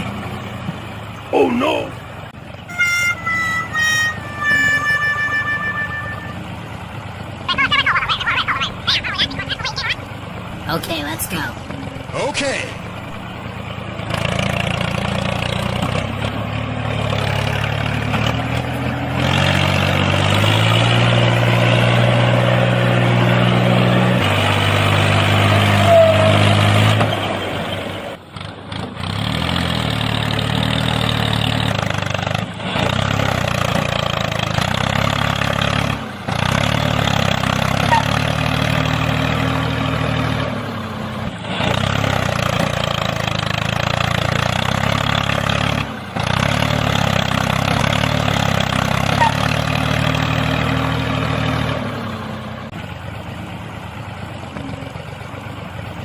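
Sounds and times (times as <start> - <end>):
engine idling and revving: 0.0 - 56.0.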